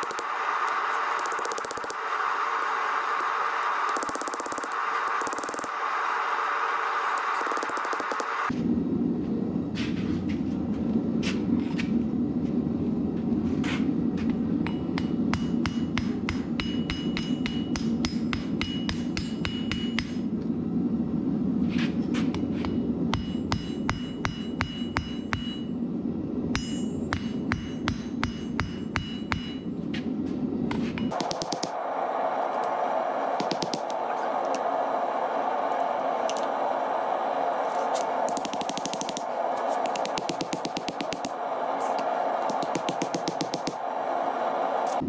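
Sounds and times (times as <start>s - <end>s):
low rushing noise: 31.1s - 45.0s
hammer blows on steel: 37.8s - 45.0s.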